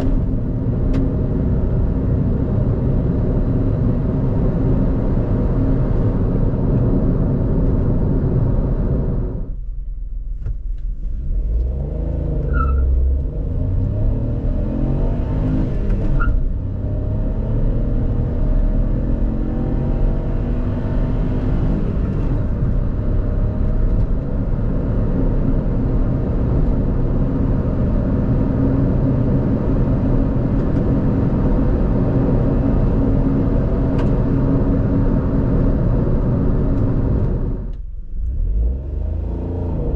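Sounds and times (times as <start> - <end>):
car engine accelerating hard: 11.0 - 39.9.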